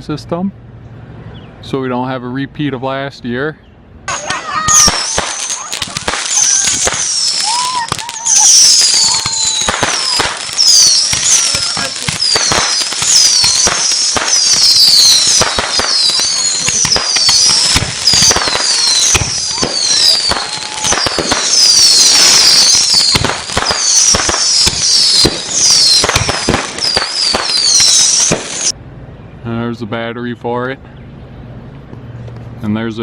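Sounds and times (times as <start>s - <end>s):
fireworks bangs and crackles: 4.1s - 28.8s
fireworks whistling: 4.1s - 28.8s.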